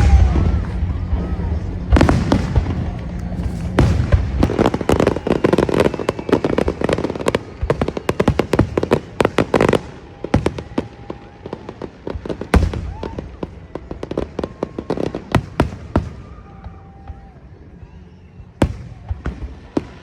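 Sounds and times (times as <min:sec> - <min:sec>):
firework sharp bang: 0:00.0 - 0:08.8
fireworks cracking and popping: 0:00.0 - 0:16.6.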